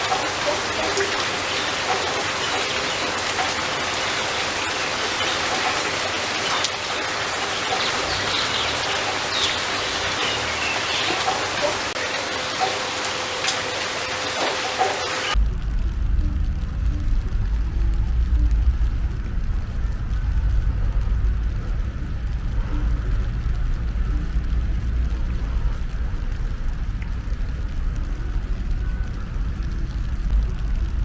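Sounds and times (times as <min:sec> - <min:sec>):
steady rain falling: 0:00.0 - 0:31.0
low rumble: 0:15.3 - 0:31.0.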